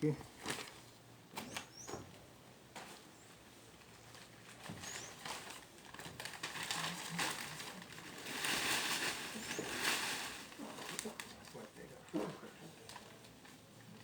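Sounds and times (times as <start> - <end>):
newspaper crumpling: 0.3 - 0.9, 3.8 - 14.0.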